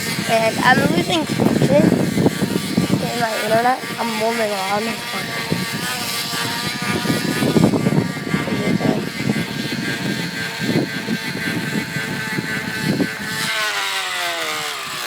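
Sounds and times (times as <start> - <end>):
plastic bottle buzzing in bicycle spokes: 0.0 - 15.0.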